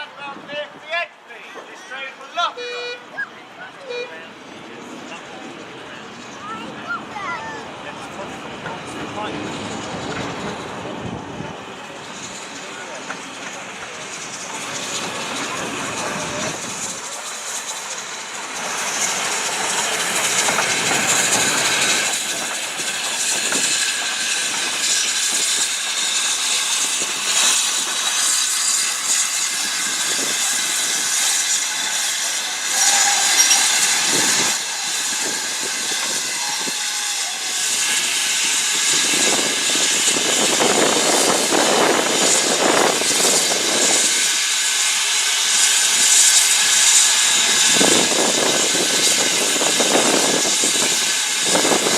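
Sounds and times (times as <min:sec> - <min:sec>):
steam locomotive hissing steam: 0:00.0 - 0:51.9.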